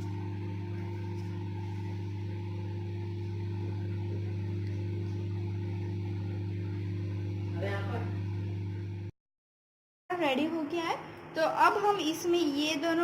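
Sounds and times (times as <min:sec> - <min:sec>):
microwave oven humming: 0:00.0 - 0:09.1.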